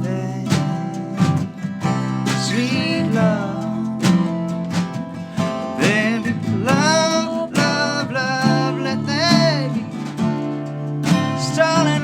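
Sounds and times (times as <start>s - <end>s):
acoustic guitar strumming: 0.0s - 12.0s
person singing: 2.3s - 4.4s, 5.7s - 9.8s, 11.3s - 12.0s.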